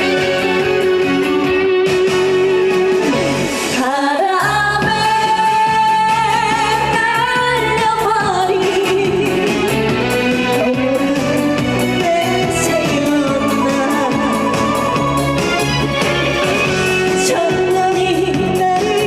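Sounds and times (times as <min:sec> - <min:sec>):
musical accompaniment: 0:00.0 - 0:19.0
woman singing with vibrato: 0:03.7 - 0:15.6, 0:16.9 - 0:19.0.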